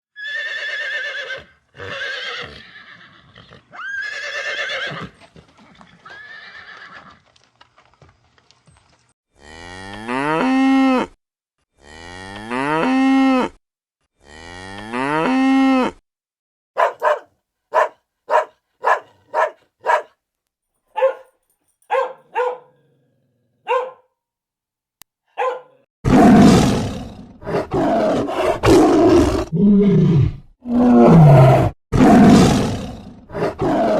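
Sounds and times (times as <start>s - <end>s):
cow mooing: 16.8s - 17.2s, 17.8s - 20.0s
short yelping calls: 16.8s - 20.1s
animal roaring: 17.8s - 20.0s, 26.1s - 33.9s.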